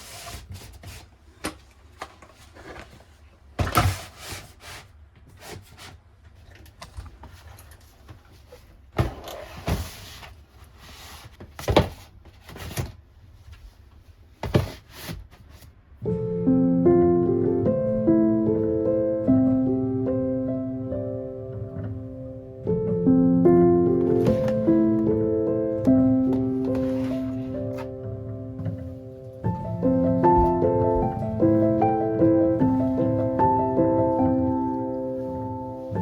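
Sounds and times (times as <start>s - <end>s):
plastic drawers sliding: 8.9s - 13.0s, 24.0s - 25.0s, 26.4s - 29.0s.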